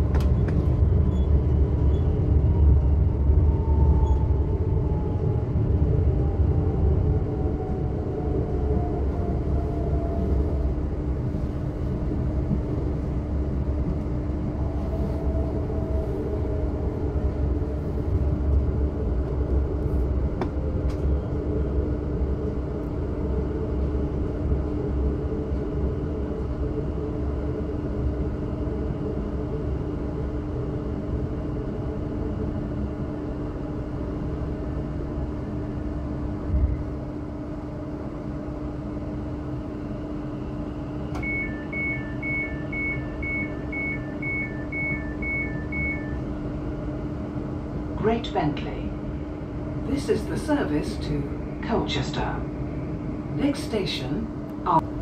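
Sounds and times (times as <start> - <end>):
train wheels rumbling on track: 0.0 - 28.4.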